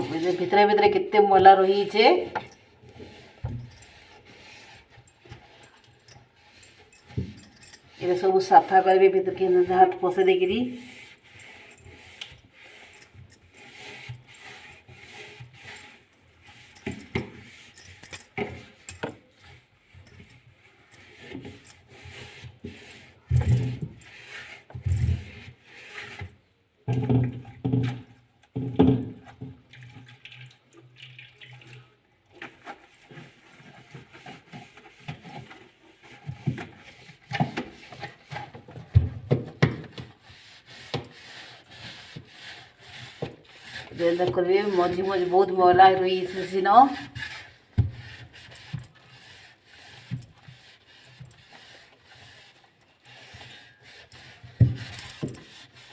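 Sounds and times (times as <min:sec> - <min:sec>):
scrubbing and wiping with soapy water: 0:00.0 - 0:02.3, 0:06.3 - 0:17.8, 0:32.3 - 0:39.0, 0:39.9 - 0:55.9.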